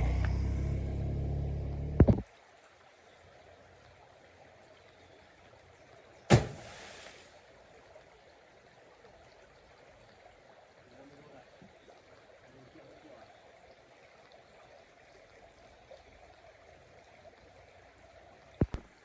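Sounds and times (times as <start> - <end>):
sharp knock with hiss: 6.3 - 7.2.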